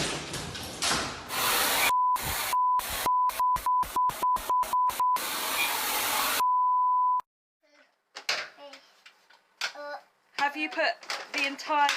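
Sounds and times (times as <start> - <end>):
censor bleep tone: 6.4 - 7.3.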